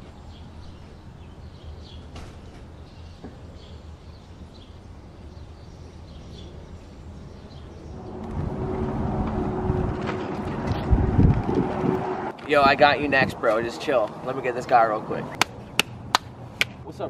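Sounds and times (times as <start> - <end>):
low steady rumble: 7.8 - 12.4.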